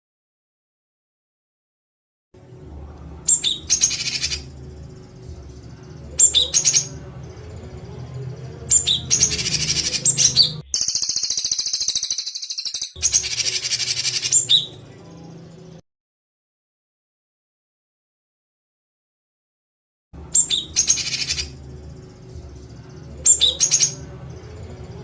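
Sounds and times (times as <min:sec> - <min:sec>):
songbird harsh rapid calls: 0:08.7 - 0:14.7
buzzy bird rattle: 0:10.8 - 0:13.0.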